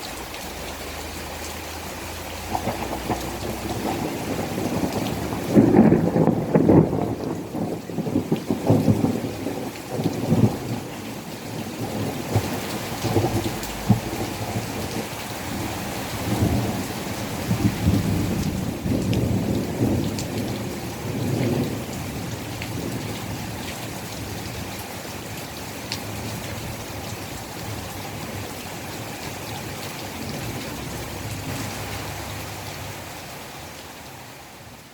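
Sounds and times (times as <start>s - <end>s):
heavy rain: 0.0s - 34.9s
thunder rumbling: 0.5s - 33.6s
sharp thunder crackles: 1.9s - 24.7s.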